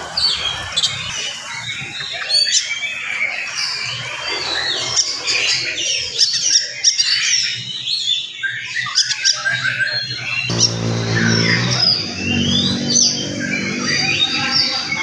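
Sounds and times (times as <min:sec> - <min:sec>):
bird singing chirps and whistles: 0:00.2 - 0:15.0
low steady hum: 0:10.5 - 0:12.9.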